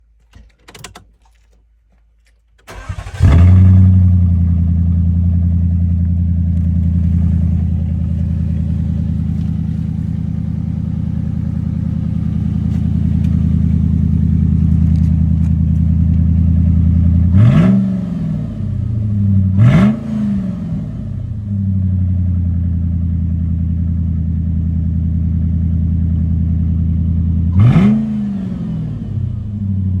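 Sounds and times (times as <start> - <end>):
car engine starting and idling: 2.6 - 30.0
engine revving: 2.7 - 5.7, 11.5 - 21.4, 27.5 - 29.6.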